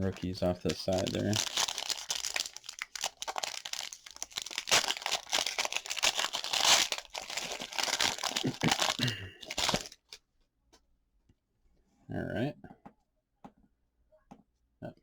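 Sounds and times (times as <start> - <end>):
card pack wrapper tearing and crinkling: 0.0 - 10.2.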